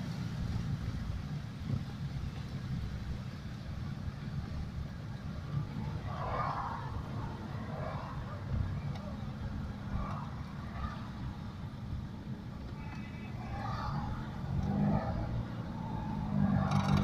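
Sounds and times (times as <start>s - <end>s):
car engines rumbling: 0.0s - 17.0s
faint voices: 4.8s - 17.0s.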